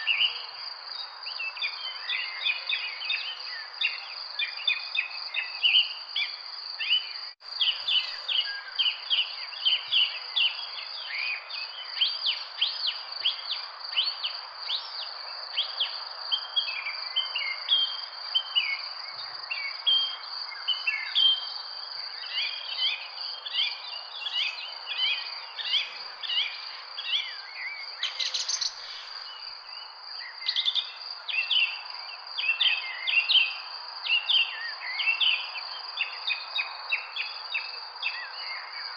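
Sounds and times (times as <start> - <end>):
birds chirping: 22.2 - 33.1.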